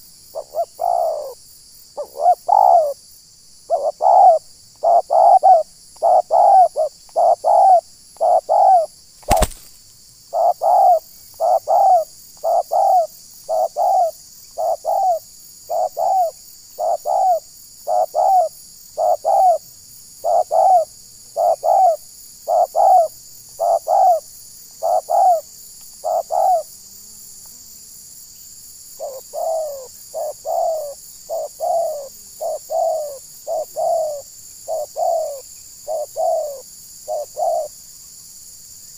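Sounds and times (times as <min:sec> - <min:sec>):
dove cooing: 0:00.0 - 0:01.4, 0:02.0 - 0:03.0, 0:03.7 - 0:09.7, 0:10.3 - 0:19.6, 0:20.2 - 0:26.7, 0:29.0 - 0:37.7
sharp click: 0:09.2 - 0:09.7.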